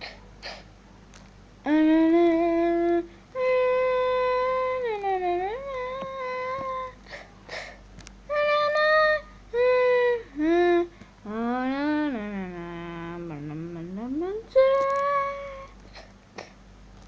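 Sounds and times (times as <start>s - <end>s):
person humming held notes: 1.6s - 7.1s, 8.3s - 16.1s.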